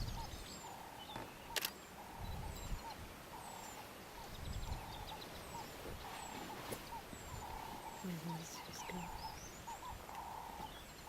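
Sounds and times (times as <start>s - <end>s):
birds whistling: 0.0s - 11.0s
camera shutter click: 1.5s - 1.8s.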